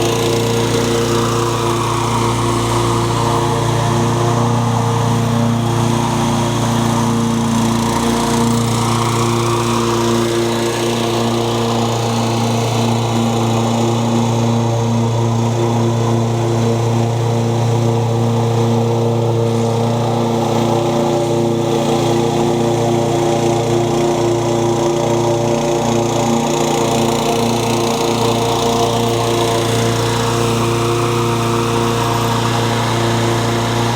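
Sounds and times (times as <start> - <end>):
lawn mower engine running: 0.0 - 33.9.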